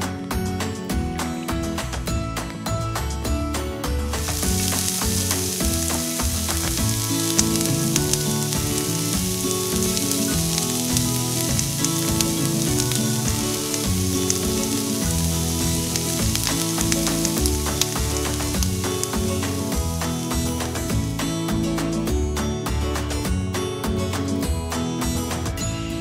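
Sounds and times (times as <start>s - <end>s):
background music: 0.0s - 26.0s
chicken sizzling in oil: 4.2s - 21.2s.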